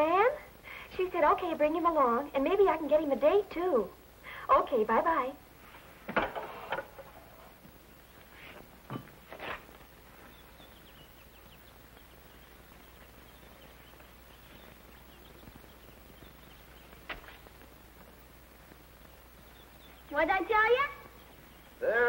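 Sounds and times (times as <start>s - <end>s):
steady hiss: 0.0s - 22.0s
faint bird chirps: 9.8s - 22.0s.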